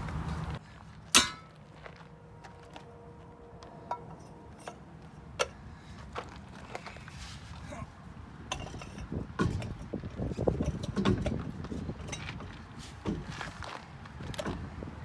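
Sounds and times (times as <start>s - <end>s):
sharp metallic clank: 1.2s - 1.6s
metal tools clicking and tapping: 3.9s - 4.8s.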